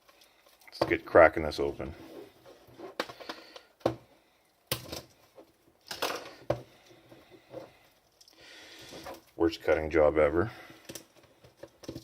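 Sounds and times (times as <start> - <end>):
plastic packaging clicks and crackles: 0.0 - 1.1, 10.7 - 12.0.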